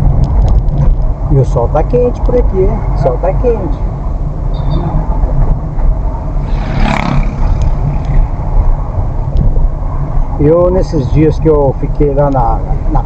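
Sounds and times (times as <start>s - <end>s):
engine and road noise in car: 0.0s - 13.0s
rushing noise: 3.9s - 10.4s.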